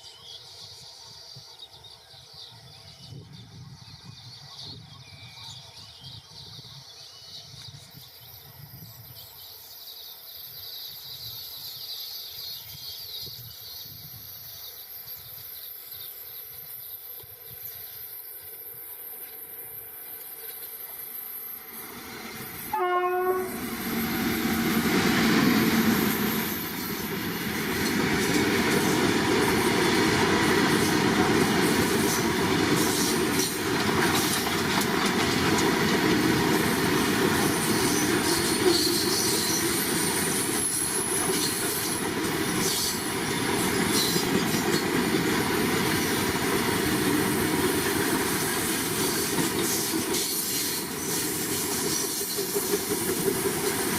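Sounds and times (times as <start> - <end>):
train passing at speed: 0.0 - 53.9
locomotive horn blast: 22.7 - 23.9.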